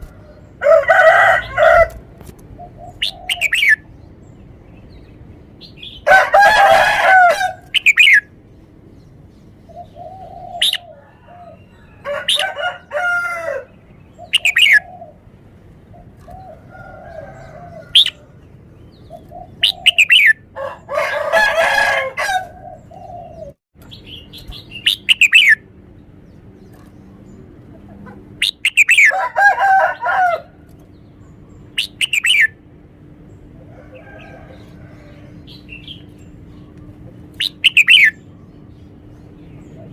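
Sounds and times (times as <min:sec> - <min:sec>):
bulbul singing: 0:00.0 - 0:13.0, 0:13.6 - 0:15.2, 0:17.8 - 0:20.6, 0:22.9 - 0:27.7, 0:28.3 - 0:29.3, 0:30.8 - 0:32.6, 0:34.5 - 0:39.9.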